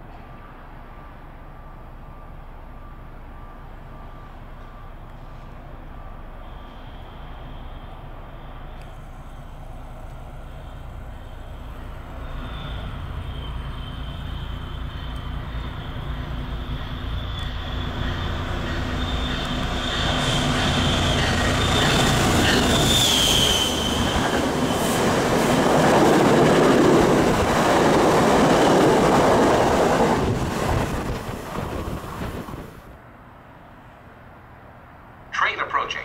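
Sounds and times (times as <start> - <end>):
train wheels rumbling on rails: 3.2 - 33.0
high-pitched wheel squeal: 10.8 - 25.0.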